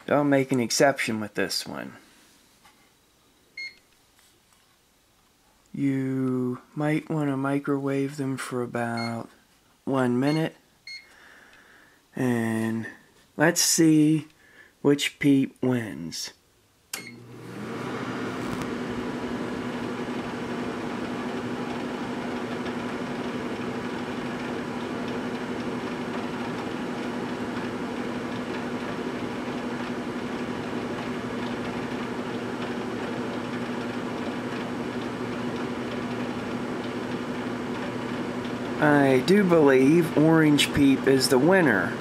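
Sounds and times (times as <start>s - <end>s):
microwave oven humming: 17.0s - 42.0s.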